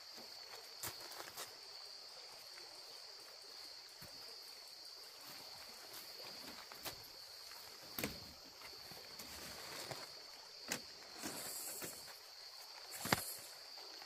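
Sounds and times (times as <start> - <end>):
insects droning: 0.0 - 14.0
camp gear knocks and rustles: 5.3 - 14.0.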